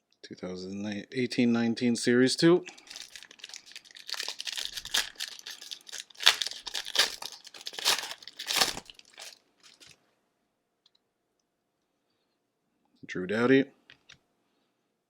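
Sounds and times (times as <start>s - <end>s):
plastic wrapper tearing and crinkling: 2.7s - 10.0s.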